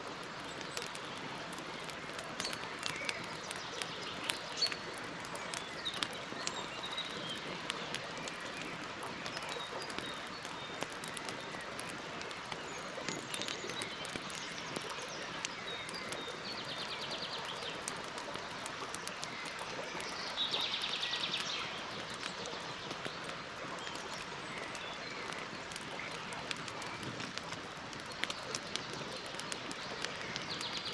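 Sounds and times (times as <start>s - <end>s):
campfire crackling and popping: 0.0s - 30.9s.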